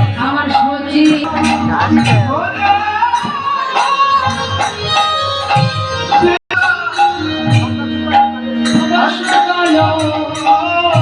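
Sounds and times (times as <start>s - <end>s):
jingling percussion: 0.0s - 11.0s.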